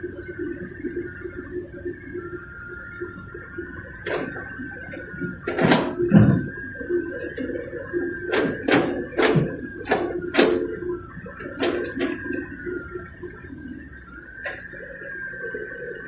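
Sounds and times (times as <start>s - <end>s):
excavator whining and humming: 0.0s - 16.0s.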